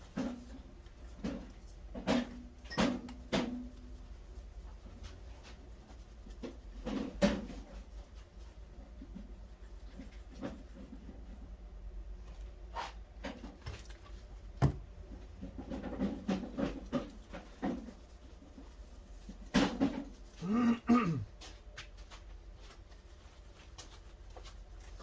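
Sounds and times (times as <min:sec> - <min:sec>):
knocks and clicks of objects handled: 0:14.6 - 0:17.9.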